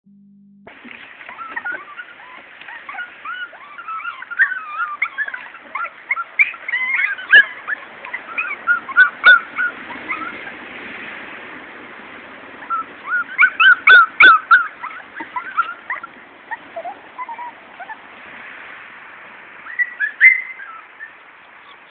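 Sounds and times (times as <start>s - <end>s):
puppies whimpering and yipping: 1.0s - 10.7s, 12.6s - 18.1s, 19.6s - 21.9s.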